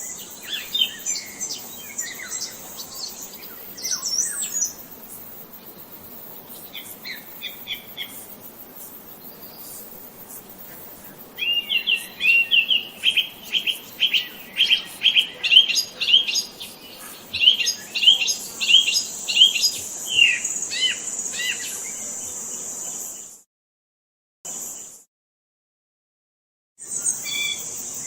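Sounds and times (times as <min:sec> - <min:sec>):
songbird chirping: 0:00.0 - 0:05.0, 0:10.9 - 0:23.2.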